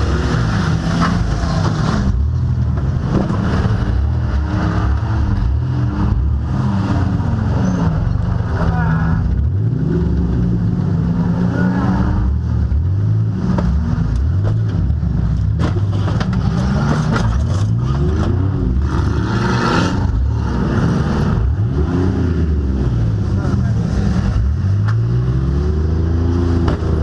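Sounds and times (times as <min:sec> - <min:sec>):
car engines revving: 0:00.0 - 0:27.0.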